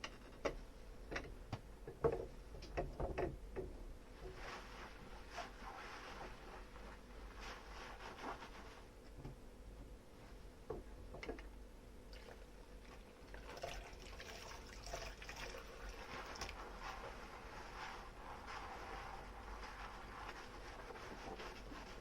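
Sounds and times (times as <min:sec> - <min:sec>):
water trickling and splashing: 0:12.1 - 0:16.6.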